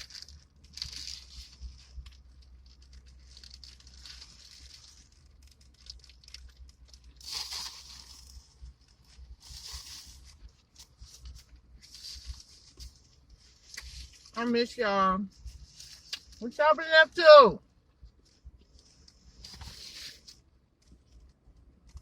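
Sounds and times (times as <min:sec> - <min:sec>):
crunching while eating: 0:00.0 - 0:14.4.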